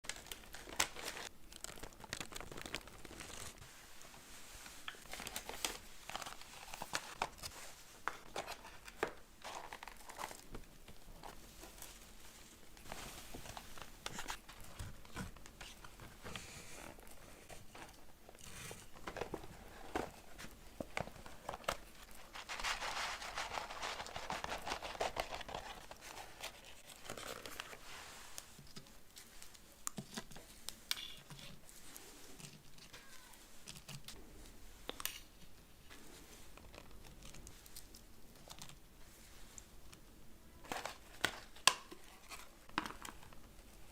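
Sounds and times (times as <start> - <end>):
food wrapping crinkling: 0.0 - 34.2.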